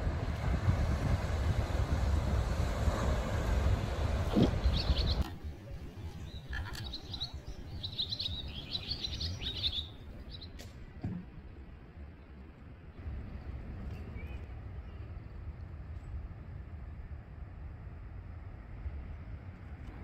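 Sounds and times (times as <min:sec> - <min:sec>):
wind and surf rushing: 0:00.0 - 0:10.4
small birds chirping: 0:04.3 - 0:05.3, 0:05.9 - 0:10.6.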